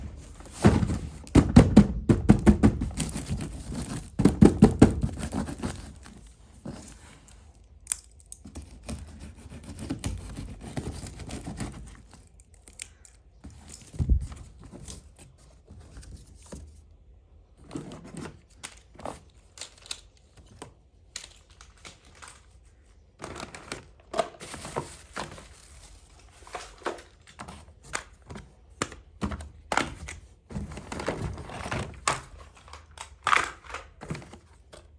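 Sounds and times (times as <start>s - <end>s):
plastic pieces knocking: 0.5s - 5.7s, 26.4s - 34.9s.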